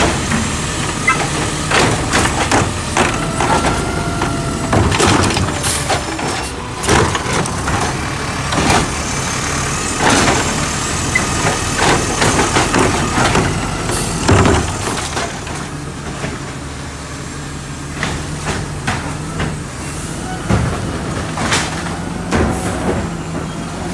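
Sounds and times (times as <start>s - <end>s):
trash cans banging: 0.0s - 16.6s
garbage truck engine running: 0.0s - 23.9s.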